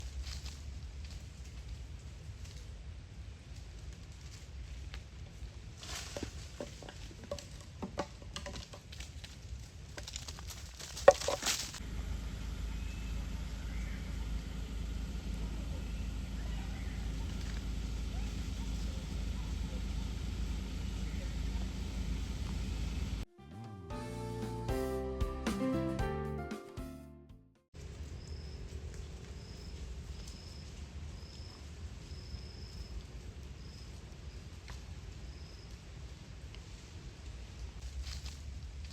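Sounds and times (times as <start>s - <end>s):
monkeys moving about: 5.9s - 11.8s, 12.6s - 23.2s
steady low rumble: 11.7s - 23.3s
background music: 23.3s - 27.5s.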